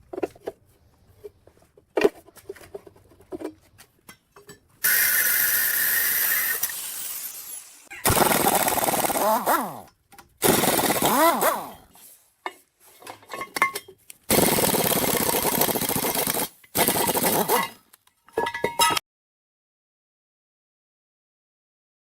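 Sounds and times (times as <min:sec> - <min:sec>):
power tool motor running: 0:04.8 - 0:11.9.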